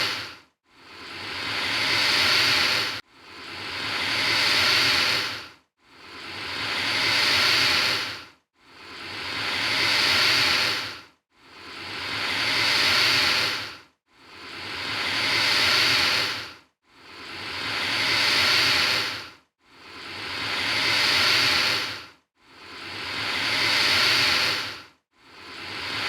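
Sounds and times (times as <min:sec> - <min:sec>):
alligator hissing: 0:00.0 - 0:03.0, 0:03.6 - 0:05.4, 0:06.1 - 0:08.2, 0:08.8 - 0:11.0, 0:11.7 - 0:13.7, 0:14.4 - 0:16.5, 0:17.2 - 0:19.2, 0:20.0 - 0:22.0, 0:22.7 - 0:24.8, 0:25.4 - 0:26.0.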